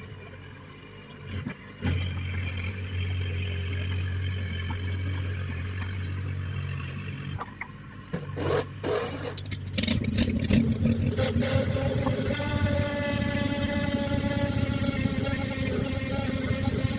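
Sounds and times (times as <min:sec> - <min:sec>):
crawler engine running and revving: 0:00.0 - 0:16.9
sharp knocks and scrapes: 0:07.4 - 0:09.6.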